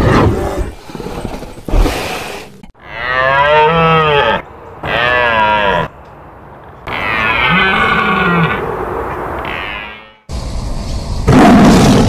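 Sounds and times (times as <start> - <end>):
deer calling: 2.8 - 6.0, 6.8 - 10.2.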